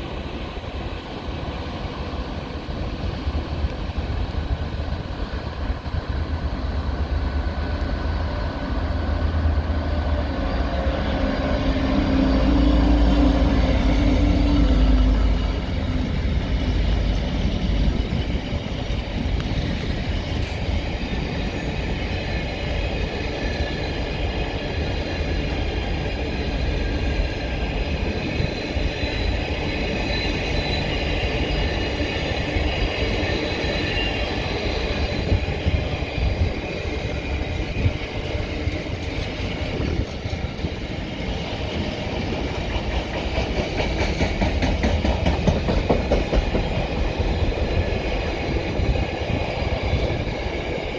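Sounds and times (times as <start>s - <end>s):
train wheels clicking over rail joints: 37.3s - 50.8s.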